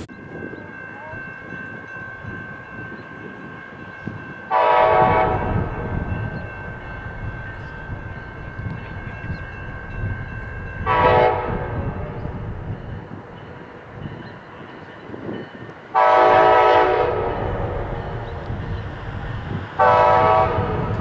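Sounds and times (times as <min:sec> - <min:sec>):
moving train rumble: 0:00.0 - 0:21.0
locomotive air horn blasts: 0:04.5 - 0:06.0, 0:10.8 - 0:12.4, 0:16.0 - 0:18.3, 0:19.8 - 0:21.0.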